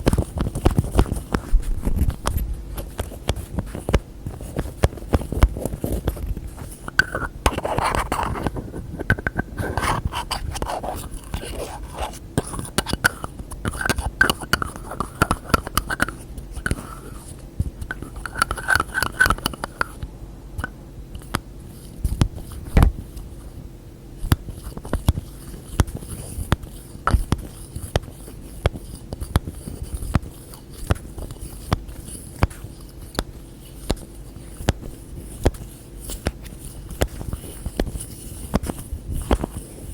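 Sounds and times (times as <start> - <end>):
scraping and rubbing: 0.0 - 20.0
fingers tapping on containers: 6.9 - 11.7, 12.4 - 16.9.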